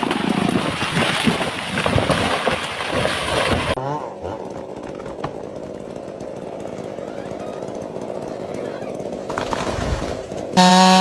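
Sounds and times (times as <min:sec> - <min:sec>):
chainsaw engine idling: 0:03.8 - 0:11.0.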